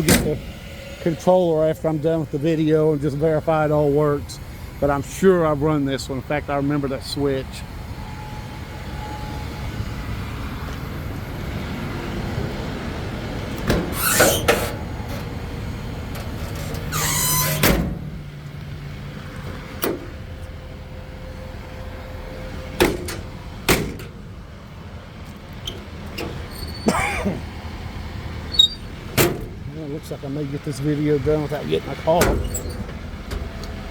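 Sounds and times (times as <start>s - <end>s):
truck engine idling: 0.0s - 33.9s
door latch squeaking: 16.6s - 17.9s, 28.5s - 29.5s, 32.2s - 33.0s
latch clicks: 22.8s - 24.2s.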